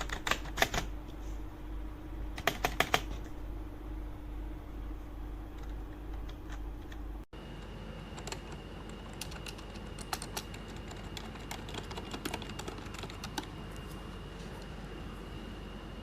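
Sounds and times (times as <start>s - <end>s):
keyboard typing: 0.0s - 0.9s, 2.3s - 3.4s, 5.5s - 7.2s, 8.1s - 13.8s.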